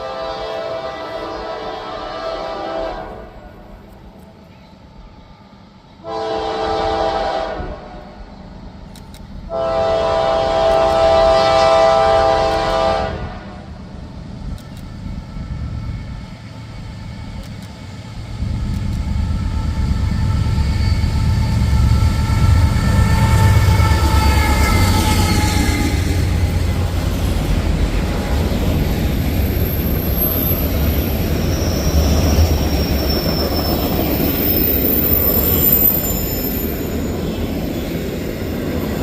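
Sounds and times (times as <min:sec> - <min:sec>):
locomotive horn blasts: 0:00.0 - 0:03.7, 0:06.0 - 0:08.1, 0:09.5 - 0:13.7
train rumble: 0:00.0 - 0:39.0.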